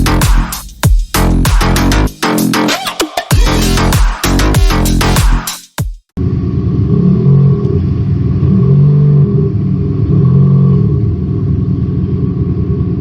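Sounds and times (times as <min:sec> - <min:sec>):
synthesized engine sound revving: 0:06.2 - 0:13.0.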